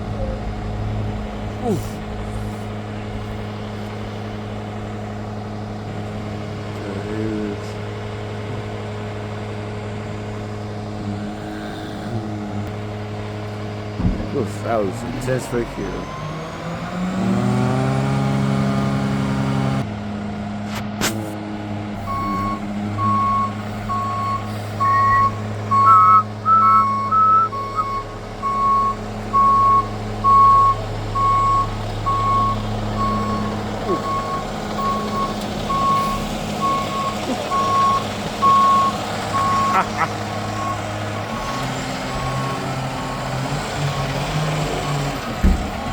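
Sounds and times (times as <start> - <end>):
garbage truck diesel engine revving: 0.0 - 45.9
reversing alarm beeps: 22.1 - 40.8.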